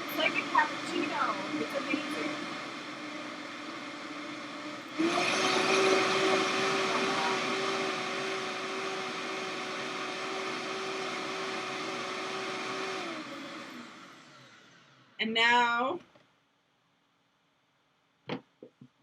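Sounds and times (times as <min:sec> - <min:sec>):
blender running: 0:00.0 - 0:15.2.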